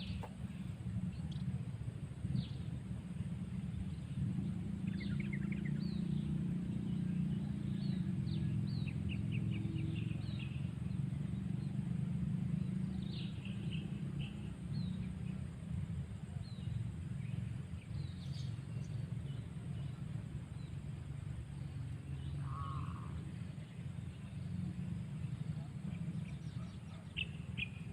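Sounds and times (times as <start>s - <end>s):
steady low hum: 0.0s - 27.9s
small birds chirping and trilling: 3.5s - 27.9s
lower bird call: 22.1s - 24.4s.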